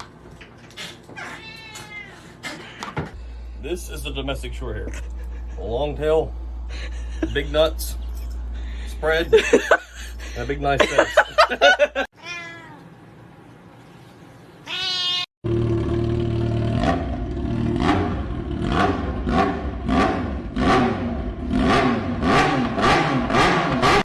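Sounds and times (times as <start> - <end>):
cat meowing: 1.2 - 2.3, 12.2 - 12.9, 14.6 - 15.3
steady low rumble: 3.2 - 11.8.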